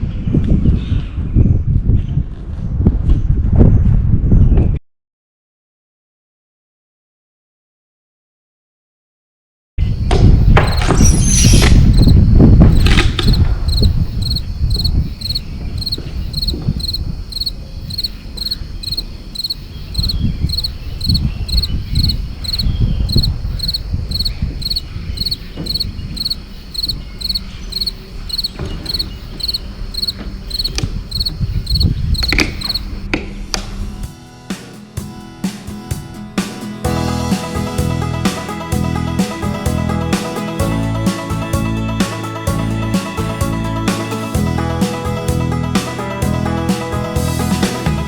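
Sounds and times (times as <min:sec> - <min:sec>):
cricket chirping: 0:10.2 - 0:33.1.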